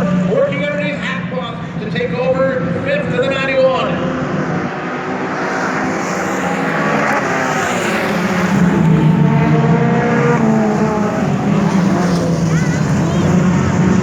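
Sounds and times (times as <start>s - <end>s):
race car engines running hard: 0.0s - 14.0s.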